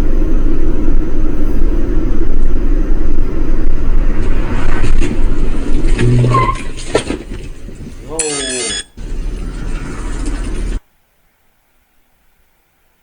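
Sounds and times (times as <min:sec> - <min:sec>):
vehicle rumble: 0:00.0 - 0:10.9
road and wind noise: 0:00.0 - 0:11.4
brief higher tone: 0:08.2 - 0:09.0.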